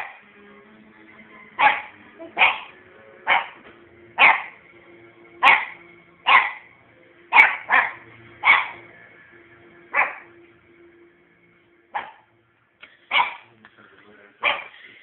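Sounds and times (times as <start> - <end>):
puppy barking: 1.6 - 3.6, 4.2 - 4.6, 5.4 - 6.7, 7.3 - 8.8, 9.9 - 10.3, 12.0 - 12.3, 13.1 - 13.5, 14.4 - 14.8.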